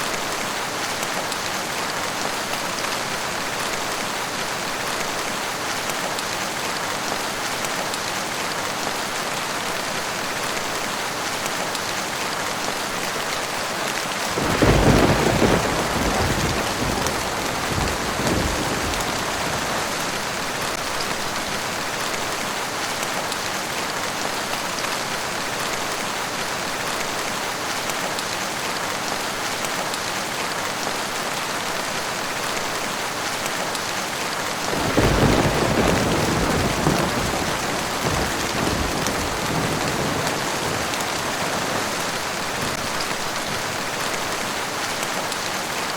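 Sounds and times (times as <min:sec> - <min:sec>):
steady rain falling: 0:00.0 - 0:45.9
thunder crack and rumble: 0:14.3 - 0:20.8, 0:34.7 - 0:43.9.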